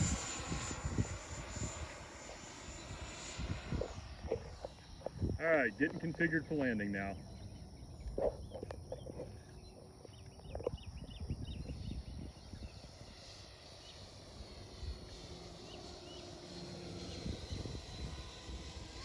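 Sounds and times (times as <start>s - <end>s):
wind rumbling on microphone: 0.0s - 6.4s, 7.2s - 13.3s, 16.9s - 19.0s
distant model jet whine: 0.0s - 19.0s
birds chirping: 4.3s - 13.1s, 15.5s - 16.4s.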